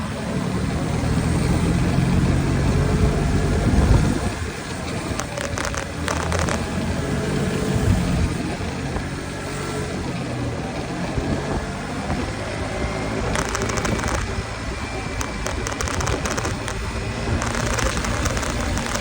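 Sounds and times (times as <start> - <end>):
traffic noise: 0.0 - 19.0
vehicle engine running: 0.0 - 19.0
short clicks: 13.3 - 14.4, 15.1 - 19.0.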